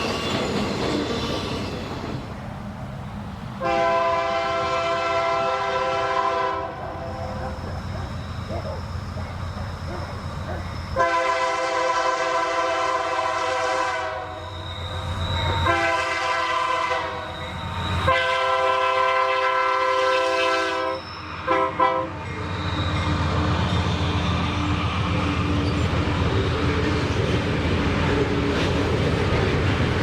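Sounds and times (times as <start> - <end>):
locomotive rumbling: 0.0 - 30.0
locomotive air horn: 3.6 - 7.0, 11.0 - 14.5, 15.6 - 17.3, 18.0 - 22.2.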